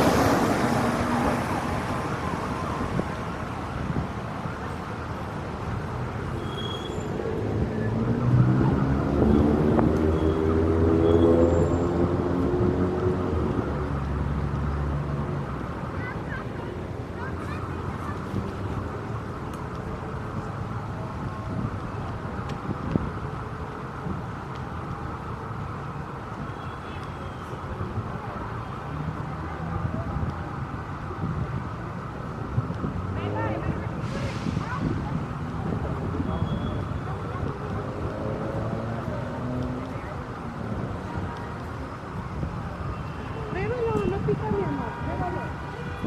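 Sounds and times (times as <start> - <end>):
city street traffic: 0.0 - 46.0.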